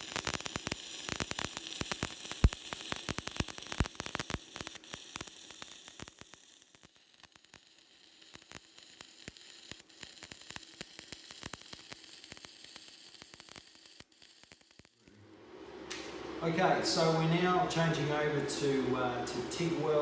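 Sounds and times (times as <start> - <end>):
welding arc crackling and sizzling: 0.0 - 15.1.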